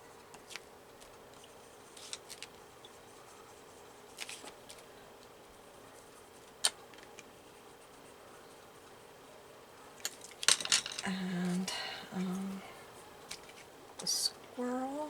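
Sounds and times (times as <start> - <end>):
faint steady hum: 0.0 - 15.0
art supplies clicking and tapping: 10.0 - 11.6.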